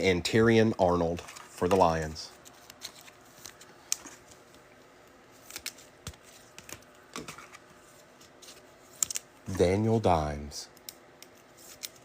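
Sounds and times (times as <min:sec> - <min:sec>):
trading cards clicking and snapping: 0:09.0 - 0:09.3.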